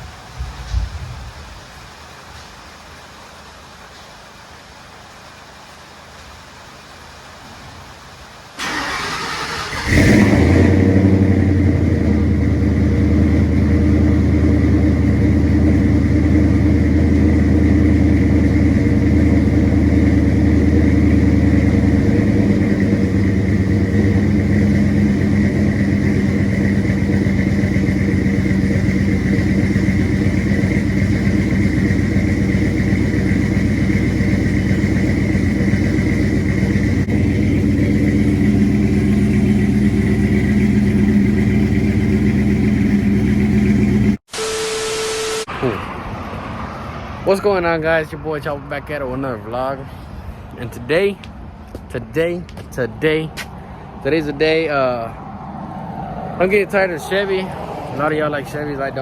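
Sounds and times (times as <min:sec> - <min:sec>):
engine starter cranking: 0:08.6 - 0:10.8
engine idling: 0:08.6 - 0:44.5
faint high whine: 0:44.3 - 0:45.8.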